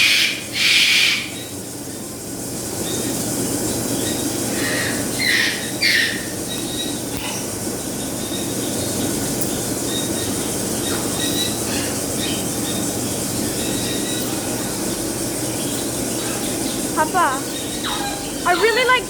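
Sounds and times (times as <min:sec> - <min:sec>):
parrots and birds calling: 0:00.0 - 0:19.0
faint bird squawks: 0:17.0 - 0:19.0.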